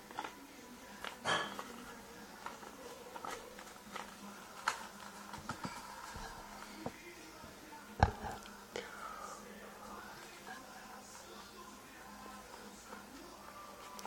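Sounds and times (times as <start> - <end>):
paper being folded and creased: 1.0 - 6.8.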